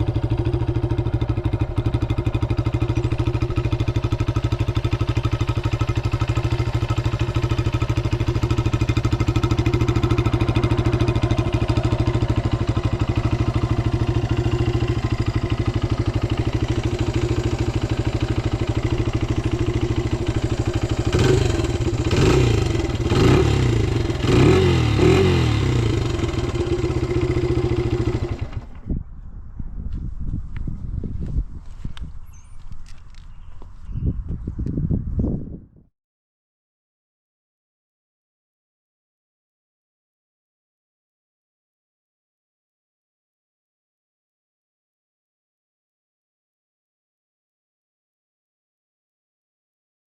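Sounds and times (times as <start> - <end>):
motorcycle engine idling and revving: 0.0 - 35.1.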